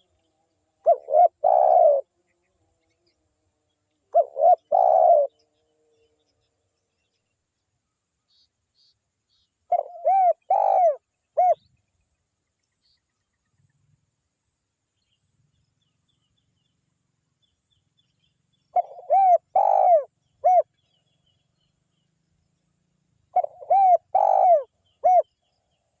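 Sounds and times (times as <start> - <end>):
dove cooing: 0.8 - 2.1, 4.1 - 5.4, 9.7 - 11.6, 18.8 - 20.7, 23.3 - 25.4.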